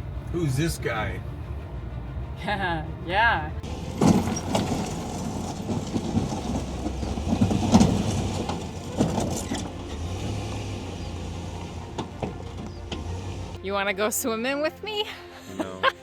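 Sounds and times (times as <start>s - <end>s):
vehicle engine rumbling: 0.0s - 13.7s
knocks and rattles: 3.6s - 13.2s.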